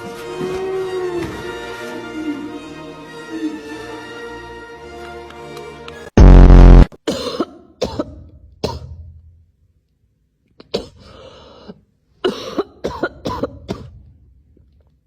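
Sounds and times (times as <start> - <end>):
person coughing: 7.0 - 9.0, 10.6 - 14.0.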